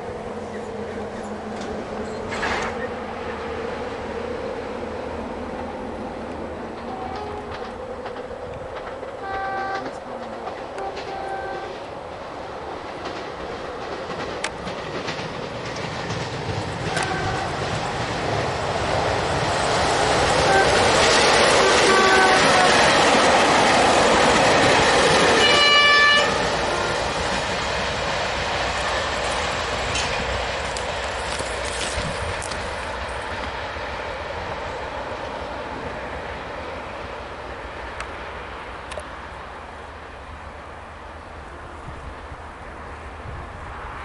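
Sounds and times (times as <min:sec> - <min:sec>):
diesel train droning: 0:00.0 - 0:44.0
wheels clickety-clack on rails: 0:00.0 - 0:44.0
brief train horn toots: 0:06.8 - 0:07.7, 0:09.2 - 0:11.8, 0:16.9 - 0:17.6, 0:20.4 - 0:21.0, 0:21.6 - 0:22.9, 0:25.3 - 0:27.0.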